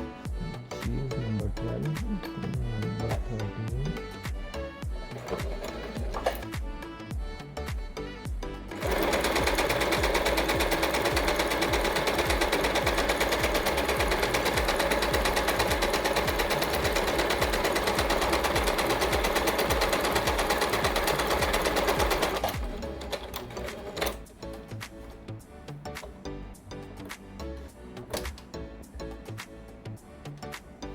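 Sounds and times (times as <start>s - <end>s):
sewing machine stitching: 5.1s - 6.6s, 8.7s - 25.2s.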